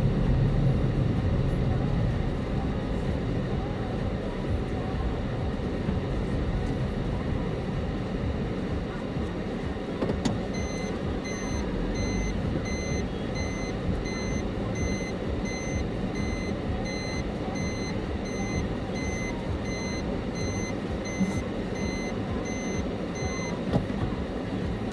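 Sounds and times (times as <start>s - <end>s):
low engine and road rumble: 0.0s - 24.9s
reversing warning beeps: 10.5s - 23.7s.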